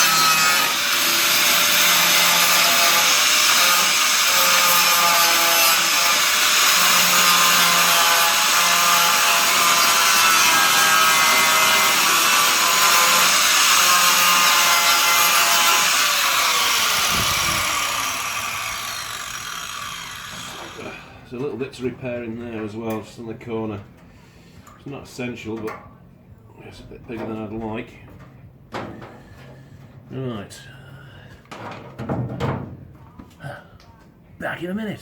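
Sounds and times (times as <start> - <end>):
angle grinder cutting sheet steel: 0.0 - 21.1.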